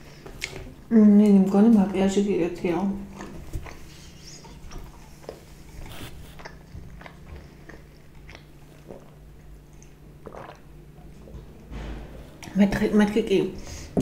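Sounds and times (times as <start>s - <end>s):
person chewing: 0.2s - 0.7s, 3.1s - 11.5s.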